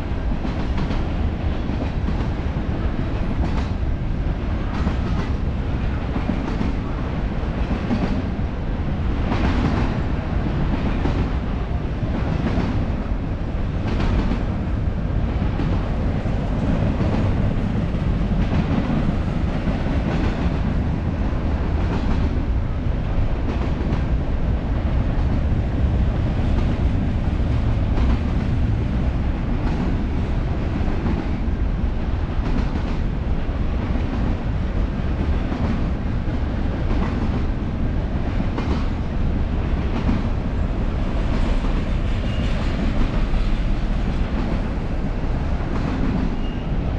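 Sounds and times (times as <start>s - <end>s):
train wheels rumbling on rail: 0.0s - 46.9s
train wheels clacking: 41.0s - 46.8s.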